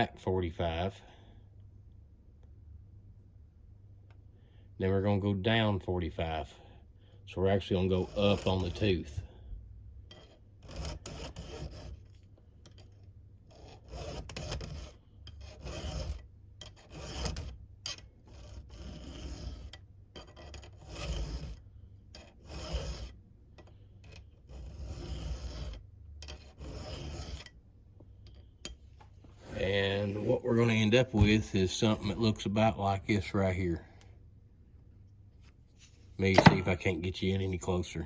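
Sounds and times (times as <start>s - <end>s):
file rasping on steel: 7.7s - 9.2s, 10.1s - 27.6s.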